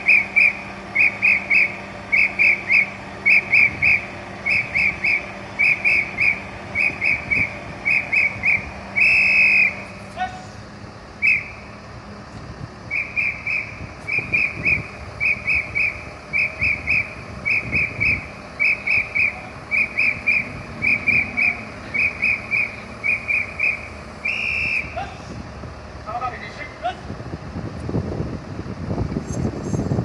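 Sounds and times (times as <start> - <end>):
pea whistle blasts: 0.0 - 9.9, 11.2 - 11.7, 12.9 - 25.1.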